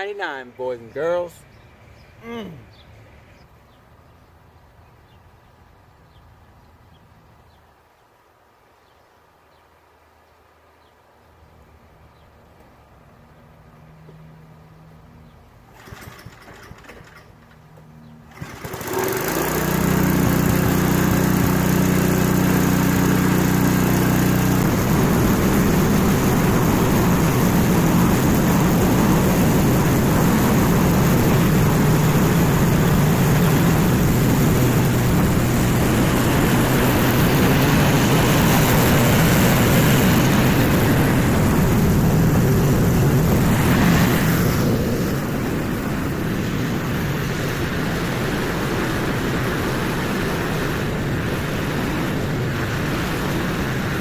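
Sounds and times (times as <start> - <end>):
small engine starting and idling: 15.6 - 54.0.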